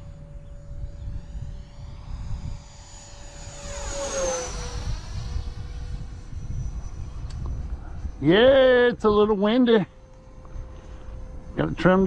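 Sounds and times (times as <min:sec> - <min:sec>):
model jet whine flying by: 0:00.0 - 0:12.0
wind buffeting microphone: 0:00.0 - 0:12.0.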